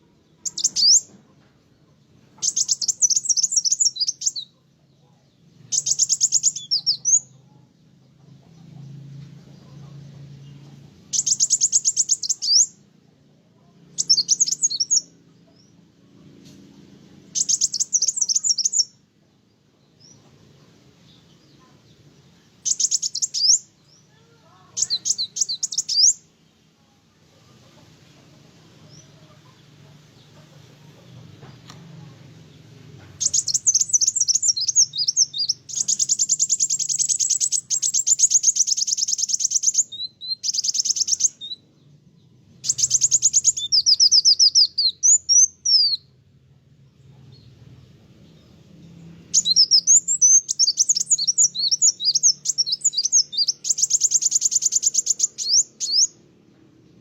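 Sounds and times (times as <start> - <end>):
bird chattering twitter: 0.4 - 1.1, 2.4 - 4.5, 5.7 - 7.4, 11.1 - 12.8, 14.0 - 15.1, 17.3 - 18.9, 22.6 - 23.7, 24.5 - 26.2, 33.2 - 41.6, 42.6 - 46.0, 49.3 - 56.2.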